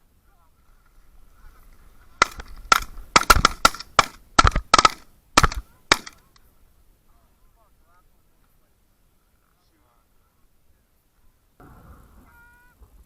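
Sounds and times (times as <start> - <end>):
shotguns firing: 2.2 - 6.3.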